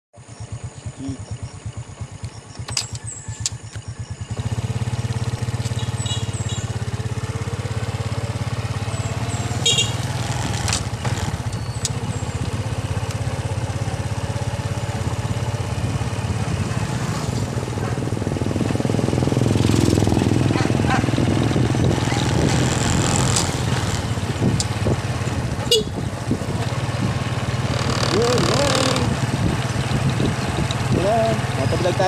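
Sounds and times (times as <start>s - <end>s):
small motorcycle engine running: 0.2s - 32.0s.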